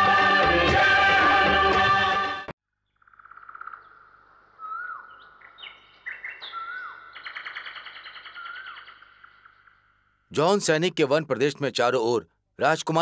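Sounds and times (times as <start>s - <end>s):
songbirds trilling: 3.2s - 10.0s
loud bird trill: 4.6s - 9.8s.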